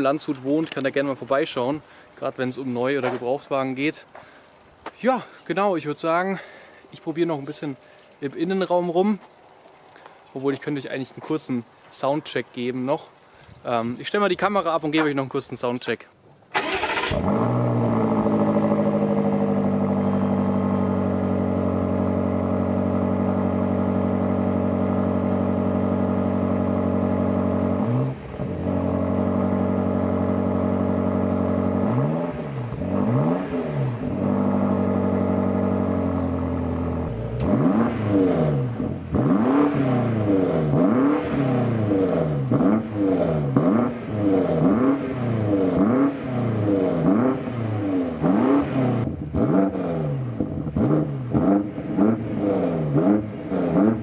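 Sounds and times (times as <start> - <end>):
car engine idling and revving: 16.6 - 54.0.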